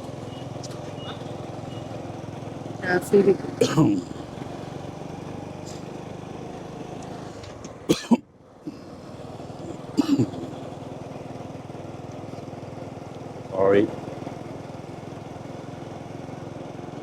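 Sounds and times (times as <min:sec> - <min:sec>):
small motorcycle engine: 0:00.0 - 0:17.0.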